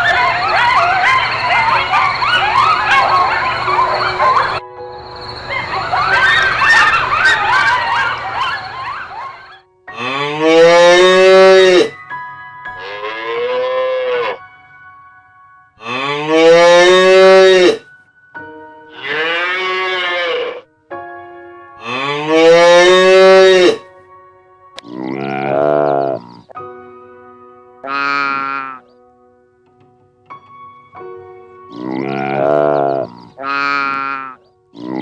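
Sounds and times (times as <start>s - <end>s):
cattle mooing: 9.9s - 12.0s, 12.7s - 14.4s, 15.8s - 17.8s, 18.9s - 20.6s, 21.8s - 23.8s, 24.8s - 26.5s, 27.8s - 28.8s, 31.7s - 35.0s.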